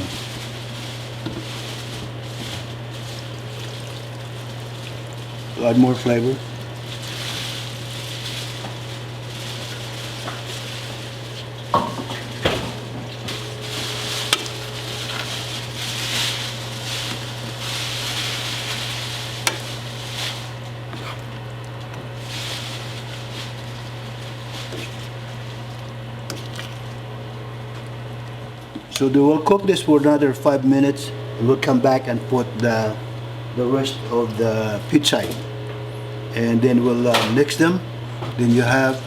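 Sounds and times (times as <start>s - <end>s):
stew sizzling in a pot: 0.0s - 21.2s, 22.2s - 26.0s.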